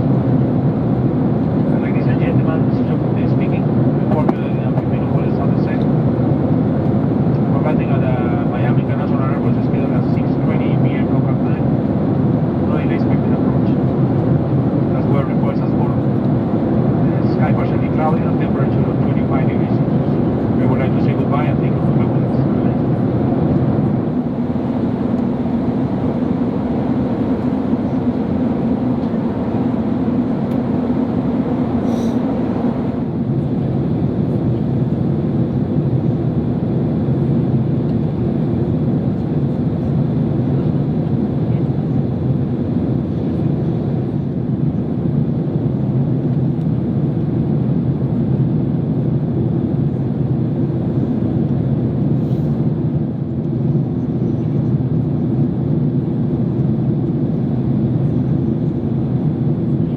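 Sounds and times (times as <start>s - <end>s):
airliner cabin engine noise: 0.0s - 59.9s.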